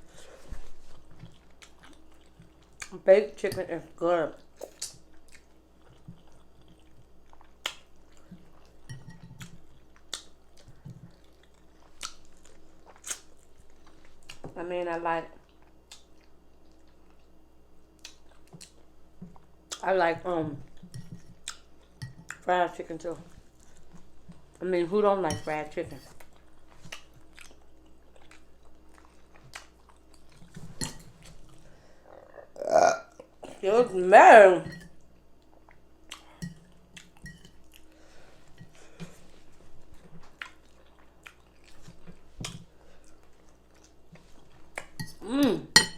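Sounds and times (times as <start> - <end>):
close-miked chewing: 0.8 - 3.0, 4.4 - 8.8, 9.4 - 14.4, 26.2 - 30.6, 39.2 - 45.0.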